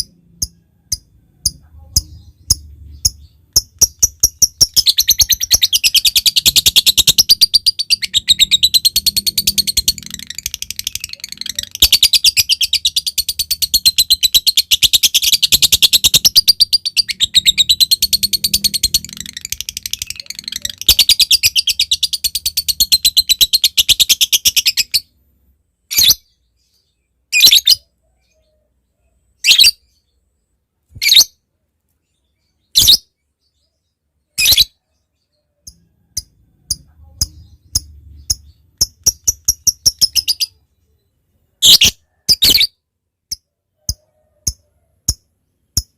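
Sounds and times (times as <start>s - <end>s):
lovebird chattering song: 0.0s - 25.1s, 34.3s - 40.8s.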